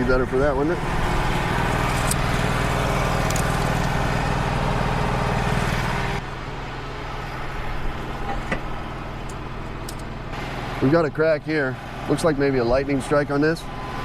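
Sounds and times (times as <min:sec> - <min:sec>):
sawmill engine running: 0:00.0 - 0:14.0.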